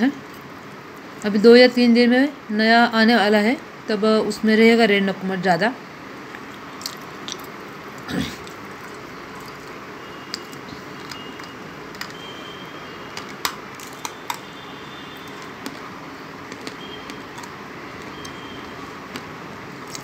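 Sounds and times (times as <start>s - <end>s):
clay being chewed with crunches: 6.3s - 12.3s, 13.1s - 20.0s.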